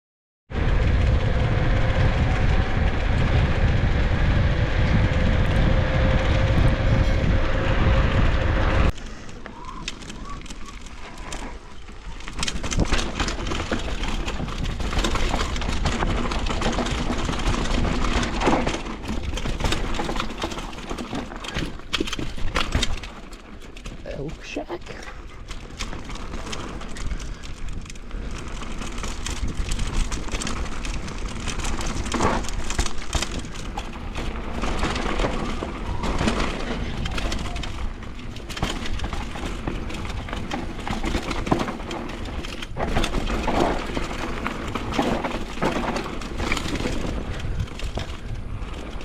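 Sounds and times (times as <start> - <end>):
wind noise on microphone: 0.5 - 9.0, 25.6 - 49.0
tyres rolling on dirt: 0.5 - 49.0
bike clicks and rattles: 0.6 - 49.0.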